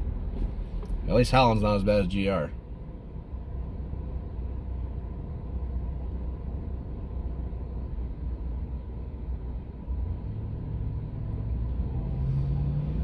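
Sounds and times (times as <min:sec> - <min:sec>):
car cabin rumble: 0:00.0 - 0:12.2
engine hum: 0:00.0 - 0:13.0.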